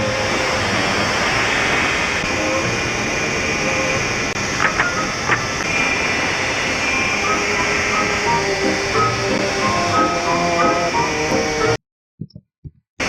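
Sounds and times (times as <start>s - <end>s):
hissing and clattering din: 4.3s - 6.4s.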